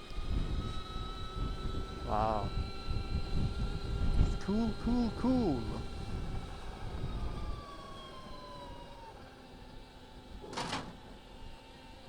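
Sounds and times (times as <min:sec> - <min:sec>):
wind and road rumble: 0:00.0 - 0:09.2
electric motorcycle motor whine: 0:00.0 - 0:12.0.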